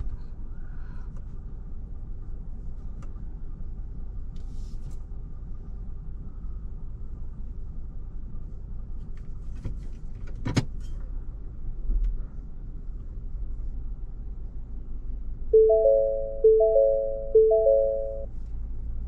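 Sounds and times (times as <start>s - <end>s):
engine rumble inside cabin: 0.0s - 19.0s
vehicle warning chime: 15.6s - 18.3s.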